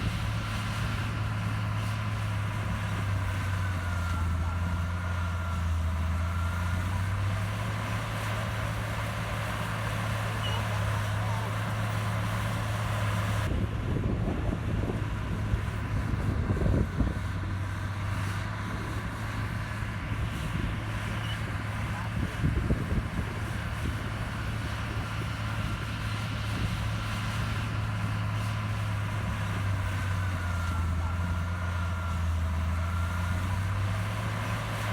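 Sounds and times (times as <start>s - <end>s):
heavy diesel machinery engine hum: 0.0s - 34.9s.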